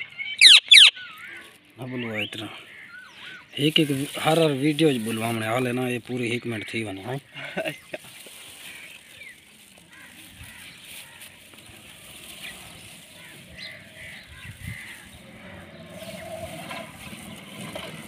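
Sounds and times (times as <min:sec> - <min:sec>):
faint short bird chirps: 0:00.2 - 0:01.4.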